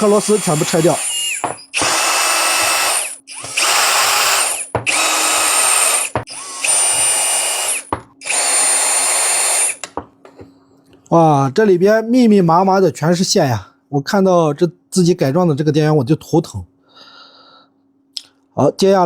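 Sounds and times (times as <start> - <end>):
mini drill motor whine: 0.0 - 9.8.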